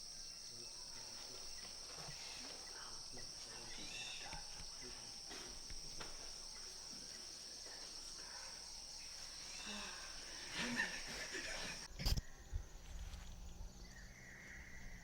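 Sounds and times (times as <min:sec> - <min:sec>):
high-pitched insect chorus: 0:00.0 - 0:15.0
faint rustles: 0:00.9 - 0:12.2.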